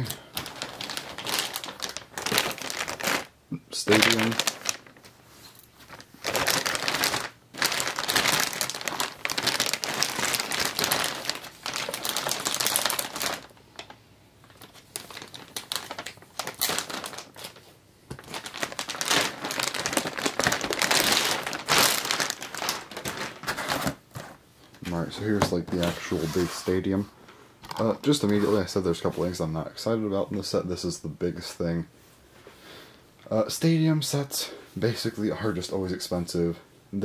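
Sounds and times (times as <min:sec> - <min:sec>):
plastic packaging crinkling: 0:00.0 - 0:25.1.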